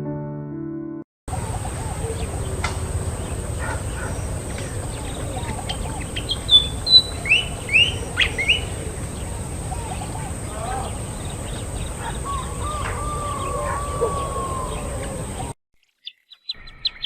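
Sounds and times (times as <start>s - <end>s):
piano music: 0.0s - 1.0s
steady low rumble: 1.3s - 15.5s
birds chirping: 1.3s - 17.0s
rising and falling bird calls: 1.3s - 17.0s.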